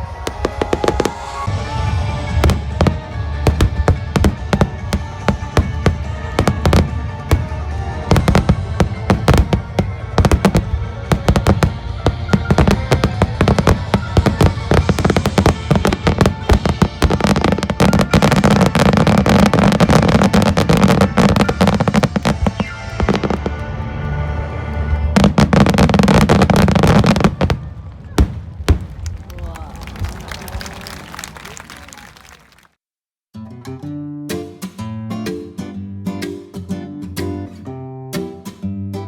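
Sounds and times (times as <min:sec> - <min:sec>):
music: 0:00.0 - 0:27.6, 0:33.3 - 0:39.0
fireworks bursting: 0:00.0 - 0:29.2
dense fireworks crackle: 0:00.0 - 0:32.4.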